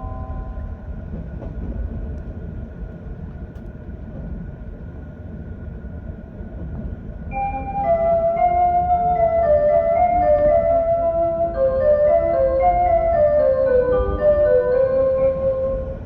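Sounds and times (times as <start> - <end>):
train chime melody: 0.0 - 1.0, 7.3 - 16.0
faint constant tone: 0.0 - 1.1, 7.3 - 16.0
train wheels and motors rumbling: 0.0 - 16.0.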